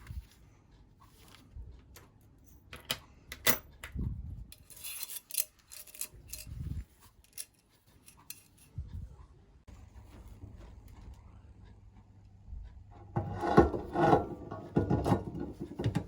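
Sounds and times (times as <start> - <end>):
metal parts scraping: 4.5 - 8.8.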